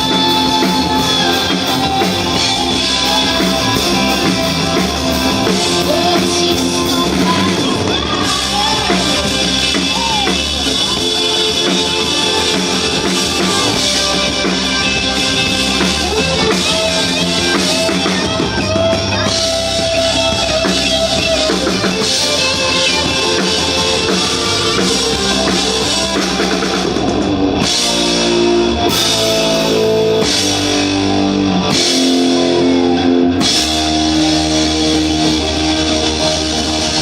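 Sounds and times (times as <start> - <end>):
drum kit: 0.0 - 37.0
electric guitar: 0.0 - 37.0
live rock band playing: 0.0 - 37.0.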